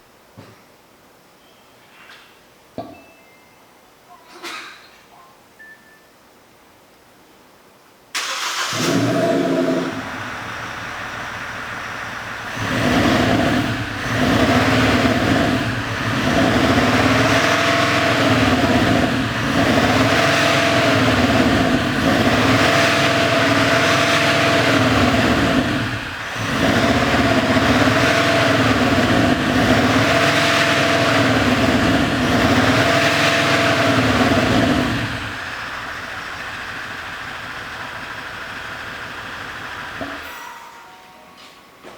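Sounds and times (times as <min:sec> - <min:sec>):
diesel engine revving: 0:08.2 - 0:40.2.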